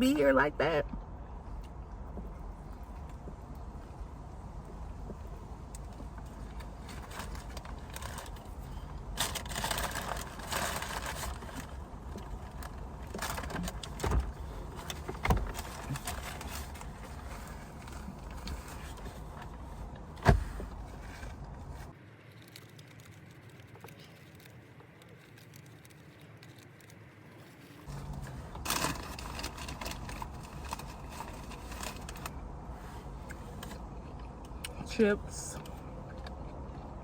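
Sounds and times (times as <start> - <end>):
crackling handling noise: 5.1 - 34.7.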